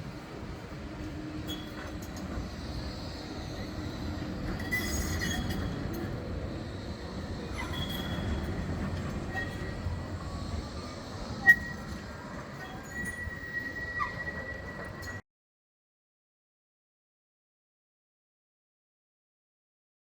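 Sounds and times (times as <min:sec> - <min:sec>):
tram rumbling along track: 0:00.0 - 0:15.2
wheels squealing on rails: 0:00.0 - 0:15.2.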